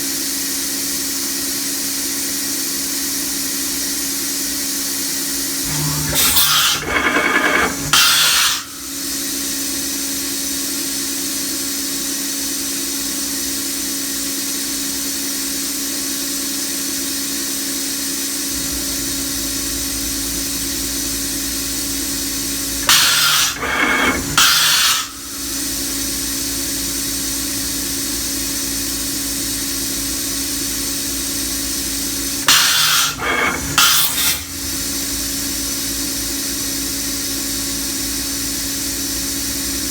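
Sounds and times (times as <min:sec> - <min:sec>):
loud burst of machine noise: 0:05.6 - 0:09.2, 0:18.5 - 0:28.4, 0:31.0 - 0:36.4
machining centre humming: 0:05.6 - 0:09.4, 0:18.5 - 0:36.6.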